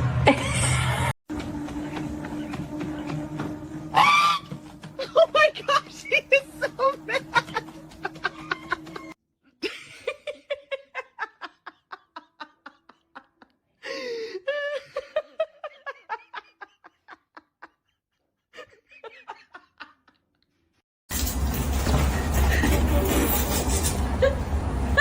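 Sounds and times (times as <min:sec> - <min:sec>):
person laughing hard: 0:04.0 - 0:18.0.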